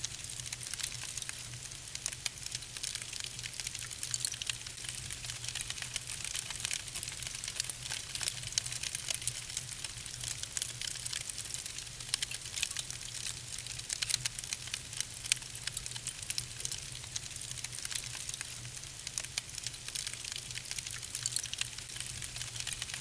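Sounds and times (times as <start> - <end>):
wood logs crackling in fireplace: 0.0 - 23.0.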